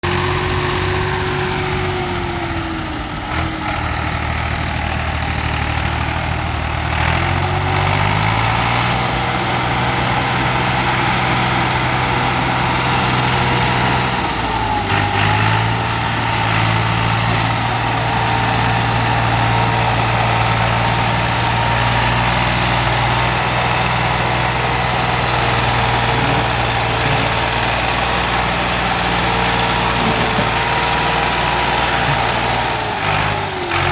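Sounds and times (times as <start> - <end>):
tractor engine under load: 0.0 - 33.9.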